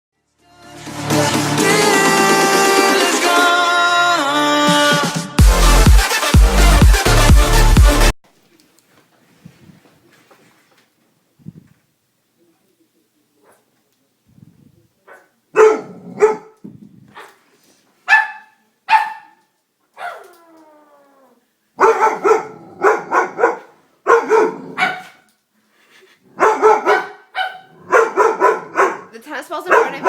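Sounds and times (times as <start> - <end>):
dog barking: 13.4 - 13.7, 15.1 - 17.4, 18.1 - 20.3, 21.8 - 25.3, 26.4 - 30.0.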